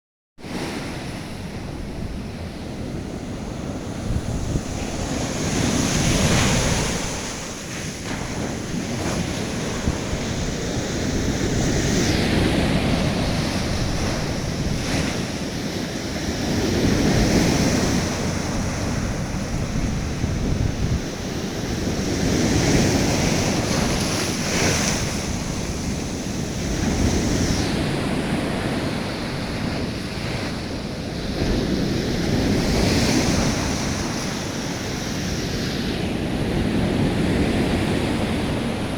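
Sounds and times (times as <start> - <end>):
sea waves breaking: 0.4 - 38.9
wind buffeting microphone: 0.5 - 38.9.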